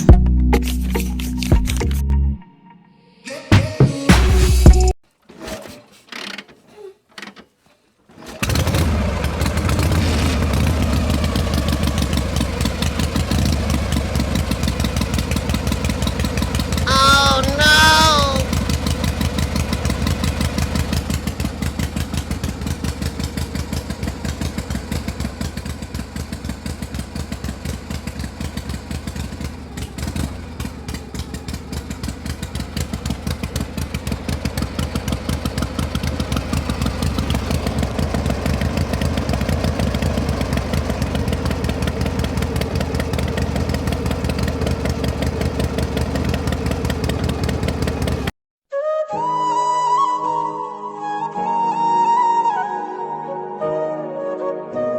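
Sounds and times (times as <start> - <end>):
small engine chugging: 8.1 - 48.3.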